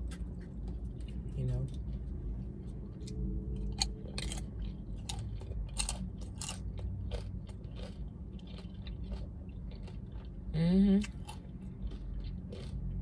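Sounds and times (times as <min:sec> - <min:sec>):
crunchy chewing: 0:00.0 - 0:13.0.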